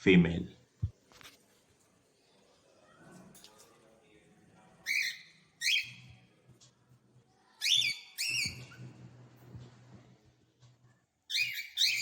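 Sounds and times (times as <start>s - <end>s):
cockatiel whistled calls: 4.9s - 6.0s, 7.6s - 8.8s, 11.3s - 12.0s.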